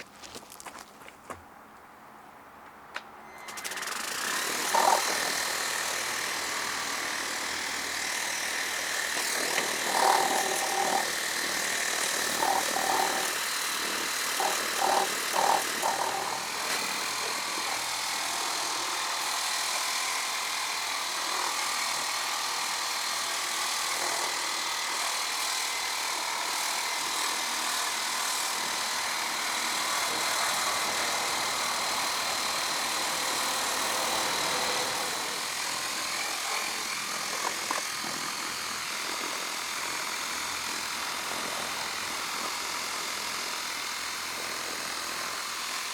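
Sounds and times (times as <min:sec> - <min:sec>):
pressure washer pump whining: 0:03.3 - 0:24.4, 0:29.0 - 0:44.4
water spray hissing: 0:08.8 - 0:17.5.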